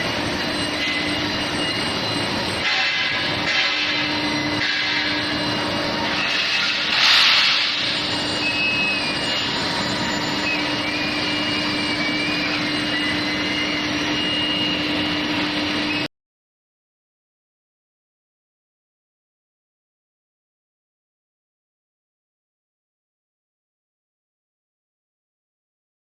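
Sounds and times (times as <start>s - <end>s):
industrial machinery hum: 0.0s - 16.1s.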